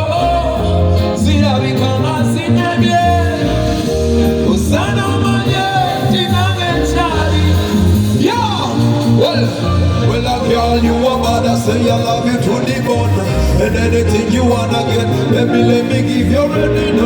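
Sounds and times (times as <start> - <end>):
live band music: 0.0 - 17.0
person singing: 0.0 - 17.0.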